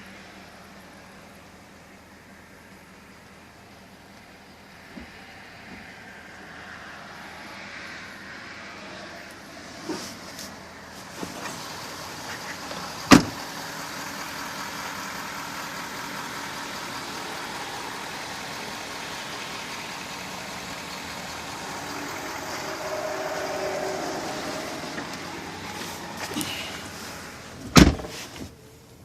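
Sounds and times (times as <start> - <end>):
pickup truck engine idling: 10.5 - 28.0.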